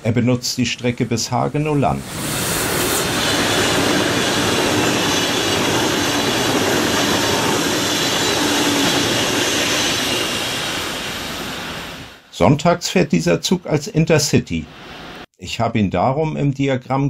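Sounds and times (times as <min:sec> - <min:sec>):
high-speed train passing: 0:00.8 - 0:12.2.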